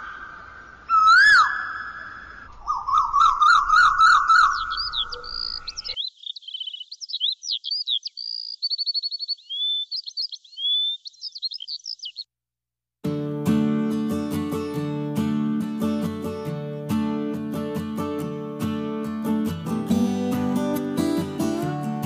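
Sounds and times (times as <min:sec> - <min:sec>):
bird whistling and chirping: 0:00.0 - 0:12.3
acoustic guitar music: 0:13.0 - 0:22.0.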